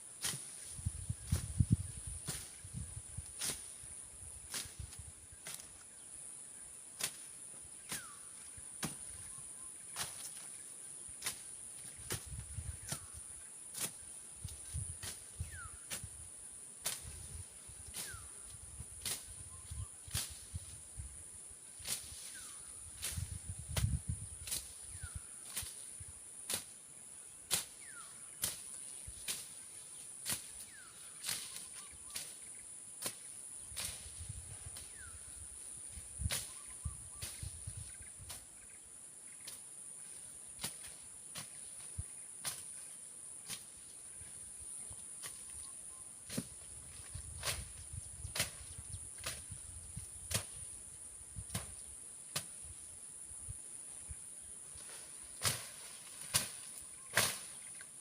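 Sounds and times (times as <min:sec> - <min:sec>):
machete chopping brush: 0:00.2 - 0:02.6, 0:03.3 - 0:03.8, 0:04.5 - 0:05.8, 0:06.9 - 0:09.2, 0:09.9 - 0:16.1, 0:16.8 - 0:17.3, 0:17.9 - 0:18.4, 0:19.0 - 0:19.4, 0:20.0 - 0:20.6, 0:21.8 - 0:22.4, 0:23.0 - 0:24.8, 0:25.4 - 0:26.8, 0:27.5 - 0:34.2, 0:36.2 - 0:36.6, 0:37.2 - 0:37.5, 0:40.6 - 0:43.8, 0:46.2 - 0:49.6, 0:50.2 - 0:50.7, 0:51.4 - 0:52.7, 0:54.8 - 0:57.8
machete slashing through brush: 0:55.4 - 0:57.6.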